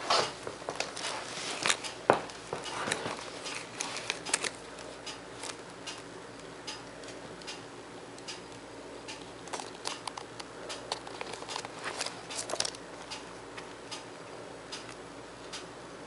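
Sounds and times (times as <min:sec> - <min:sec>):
faint steady hum: 0:00.0 - 0:16.0
packaging clicks and crinkles: 0:00.6 - 0:07.6, 0:09.1 - 0:13.7.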